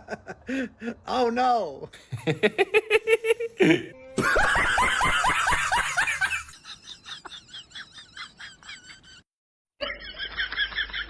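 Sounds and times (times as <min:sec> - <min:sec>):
snickering laughter: 0:02.1 - 0:09.2, 0:09.8 - 0:11.0.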